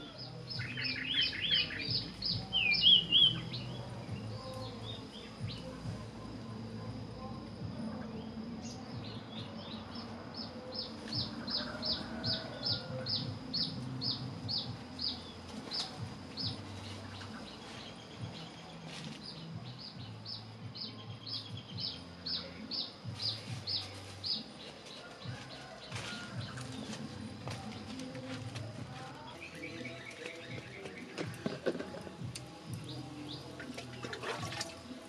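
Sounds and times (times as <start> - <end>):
bird chirping: 0.0 - 5.8.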